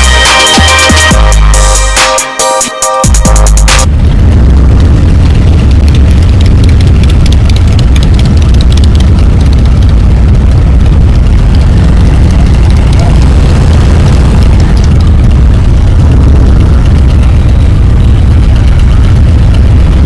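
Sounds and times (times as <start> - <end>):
motorcycle low rumble: 0.0 - 2.0, 3.1 - 20.0
music: 0.0 - 3.9.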